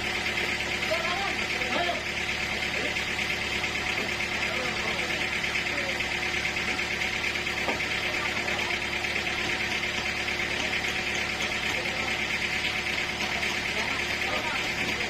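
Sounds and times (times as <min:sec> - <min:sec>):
sawmill machinery drone: 0:00.0 - 0:15.0.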